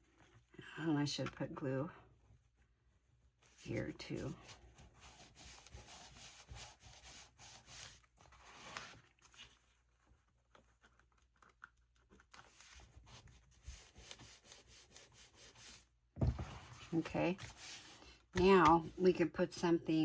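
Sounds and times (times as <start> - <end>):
paper rubbing and rustling: 3.4 - 19.1.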